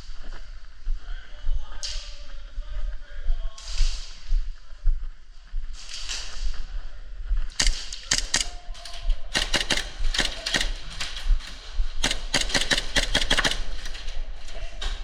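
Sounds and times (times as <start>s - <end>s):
airsoft guns firing: 7.5s - 8.6s, 9.3s - 14.2s.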